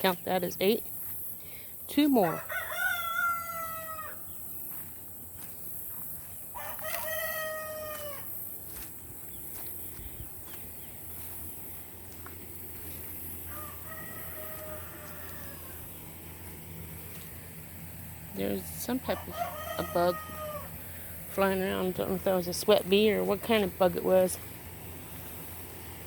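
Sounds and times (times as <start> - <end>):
rooster crowing: 2.2 - 4.4, 6.5 - 8.4, 13.4 - 16.0, 19.1 - 20.8.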